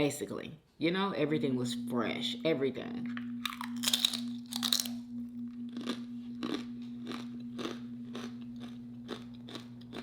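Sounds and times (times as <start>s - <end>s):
steady low hum: 0.0s - 10.0s
crunchy food bite: 3.4s - 5.1s, 5.7s - 10.0s
chewing with soft crunches: 5.7s - 10.0s.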